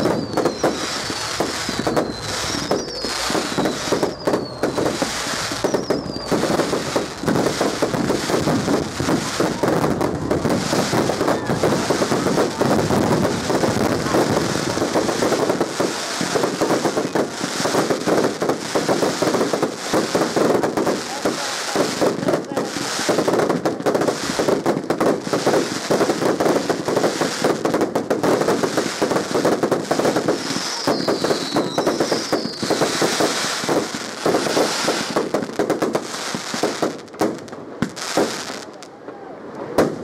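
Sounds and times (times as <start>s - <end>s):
falling firework whistles: 0.0s - 8.5s, 30.0s - 35.3s
fireworks crackling: 0.0s - 40.0s.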